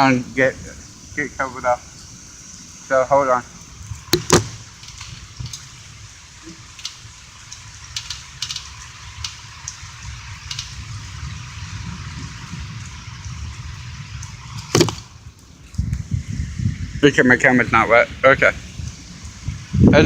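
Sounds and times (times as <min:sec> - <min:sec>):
steady rain: 0:00.0 - 0:20.0
wind rumbling on microphone: 0:00.0 - 0:20.0
ticks of drops: 0:04.1 - 0:05.6.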